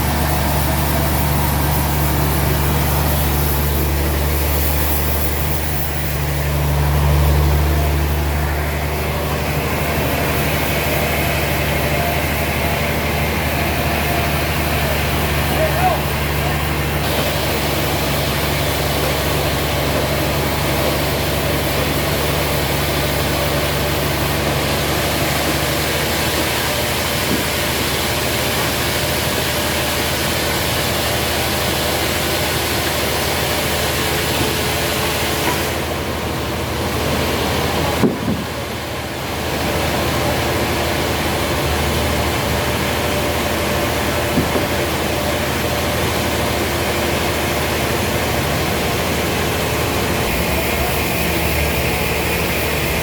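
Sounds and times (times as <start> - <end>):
sawmill machinery humming: 0.0 - 53.0
sharp knock: 38.0 - 38.5.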